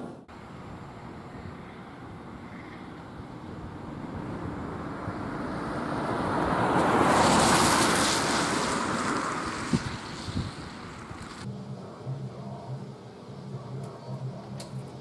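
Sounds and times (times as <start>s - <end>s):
rushing whooshing noise: 0.0s - 11.5s.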